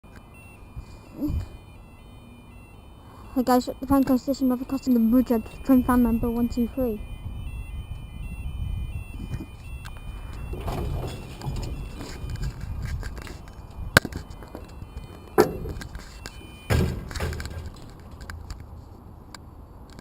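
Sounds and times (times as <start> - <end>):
sharp knocks and clicks: 9.3 - 18.6.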